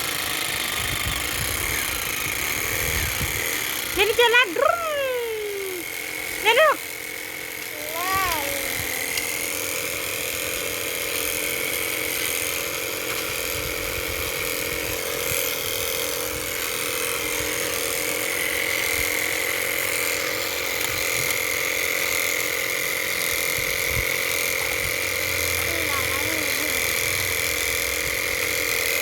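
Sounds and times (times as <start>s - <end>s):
small electric motor whining: 0.0s - 29.0s.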